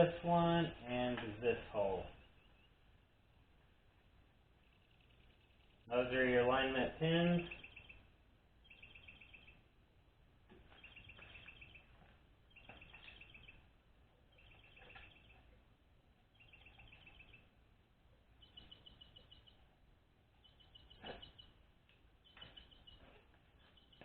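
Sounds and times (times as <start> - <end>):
bird singing rapid trill: 7.3 - 9.7, 10.7 - 15.5, 16.3 - 17.6, 18.4 - 19.7, 20.4 - 21.6, 22.2 - 24.0.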